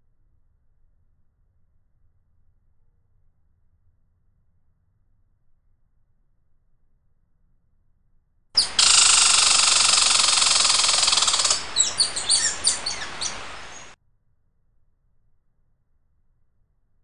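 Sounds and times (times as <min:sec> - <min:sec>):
songbird buzzing trill: 0:08.6 - 0:14.0
songbird chirps: 0:08.6 - 0:14.0.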